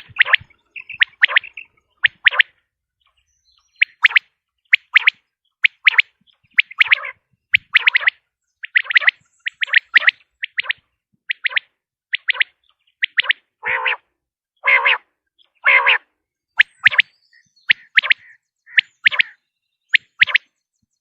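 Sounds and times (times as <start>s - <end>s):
harsh low bird call: 0.0s - 2.6s, 15.6s - 19.4s
quail calling: 0.0s - 19.4s, 20.0s - 20.5s.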